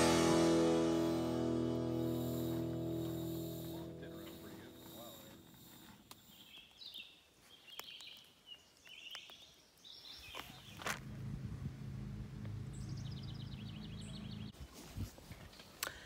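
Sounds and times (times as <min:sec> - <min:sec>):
low steady rumble: 0:00.0 - 0:05.7, 0:10.9 - 0:14.6
bird chirping: 0:01.8 - 0:14.6.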